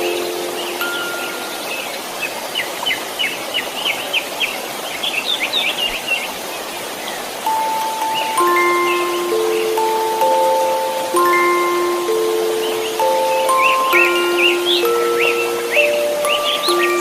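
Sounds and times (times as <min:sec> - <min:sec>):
steady white noise: 0:00.0 - 0:17.0
bird twittering chirps: 0:07.0 - 0:17.0
sustained chime-like note: 0:07.5 - 0:17.0.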